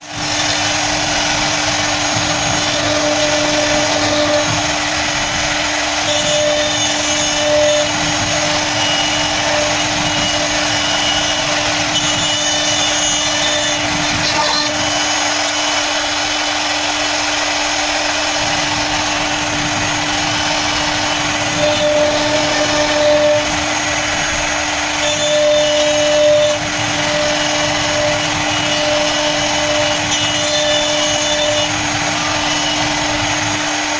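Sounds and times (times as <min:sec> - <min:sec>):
cutting hiss: 0:00.0 - 0:33.9
router spindle whine: 0:00.0 - 0:33.9
high-pitched tones: 0:06.0 - 0:15.8, 0:19.9 - 0:33.0.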